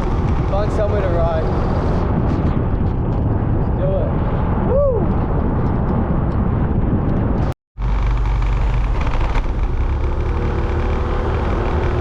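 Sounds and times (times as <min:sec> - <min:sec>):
wind rushing over microphone: 0:00.0 - 0:12.0
motorbike engine running: 0:07.8 - 0:12.0.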